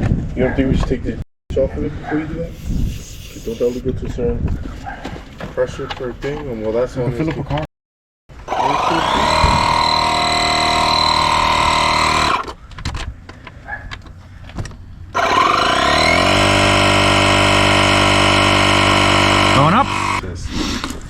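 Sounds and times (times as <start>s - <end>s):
air compressor motor whining: 8.3s - 12.6s, 14.7s - 20.2s.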